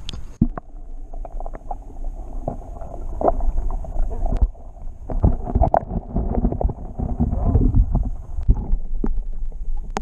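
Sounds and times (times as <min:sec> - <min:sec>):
water splashes: 0:00.0 - 0:10.0
microphone handling noise: 0:05.1 - 0:09.3
wind rumble on microphone: 0:05.2 - 0:08.9.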